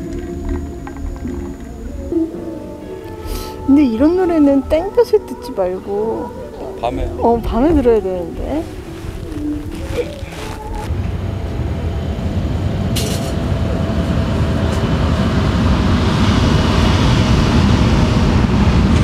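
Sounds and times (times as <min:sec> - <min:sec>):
train rumbling: 0:06.7 - 0:19.0.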